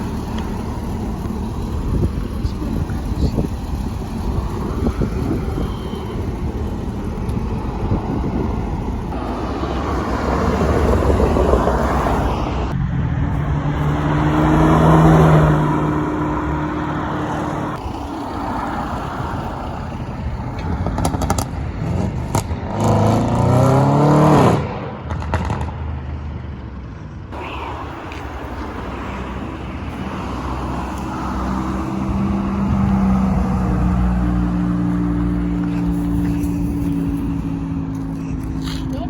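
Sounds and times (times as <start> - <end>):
steady engine drone: 0.0 - 23.2, 26.4 - 39.0
car engine revving hard: 0.0 - 25.8.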